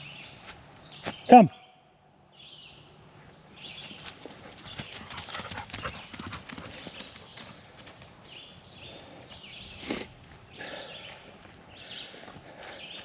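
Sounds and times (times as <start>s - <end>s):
footsteps on grass and leaves: 0.0s - 1.3s, 7.6s - 13.0s.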